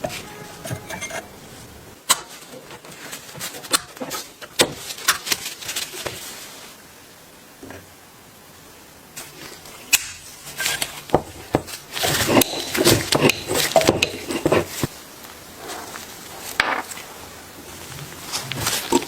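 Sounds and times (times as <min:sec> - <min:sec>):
hard objects knocking and scraping: 0:00.0 - 0:01.4, 0:10.7 - 0:15.0.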